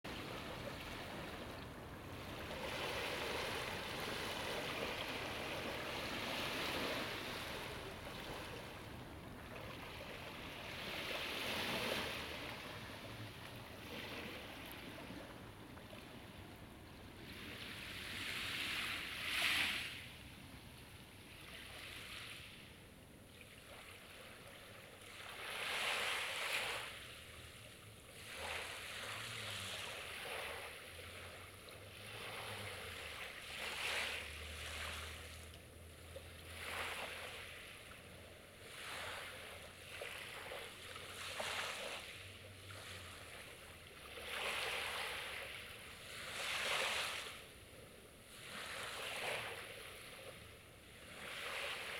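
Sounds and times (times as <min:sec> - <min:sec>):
sea waves washing onto shore: 0:00.1 - 0:20.4, 0:28.1 - 0:38.0, 0:38.6 - 0:47.6.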